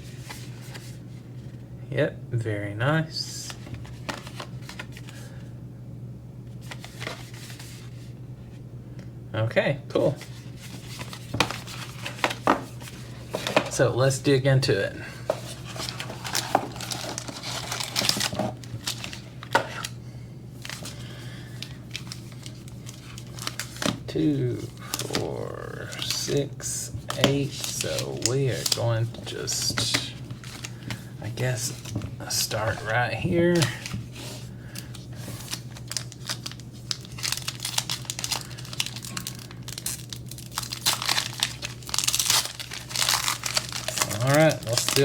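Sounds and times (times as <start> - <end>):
steady low hum: 0.0 - 45.0
foil packs crinkling: 10.0 - 14.2, 15.0 - 20.0, 20.6 - 45.0.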